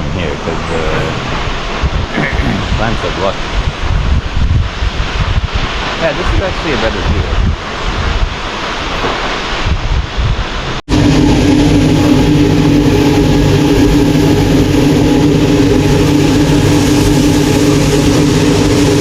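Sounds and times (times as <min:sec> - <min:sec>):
vehicle engine droning: 0:00.0 - 0:02.1, 0:10.9 - 0:19.0
rushing wind and water: 0:00.0 - 0:19.0.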